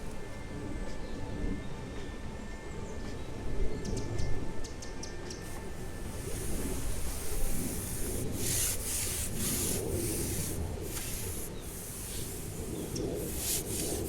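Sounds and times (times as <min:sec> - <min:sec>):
rustling against microphone: 0:05.4 - 0:14.0.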